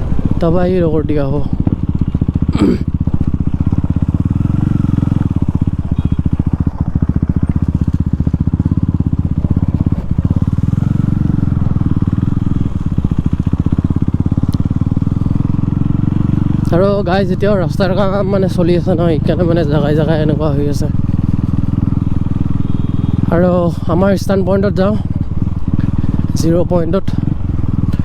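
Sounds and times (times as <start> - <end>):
loud motorcycle exhaust pulses: 0.0 - 28.0.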